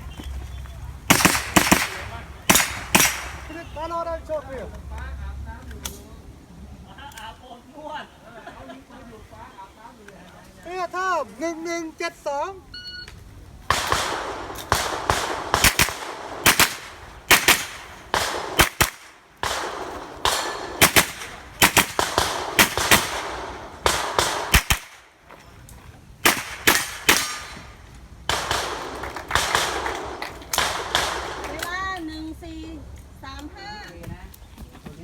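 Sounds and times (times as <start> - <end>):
rifle shots: 1.1 - 3.7, 13.7 - 25.2, 26.2 - 31.6.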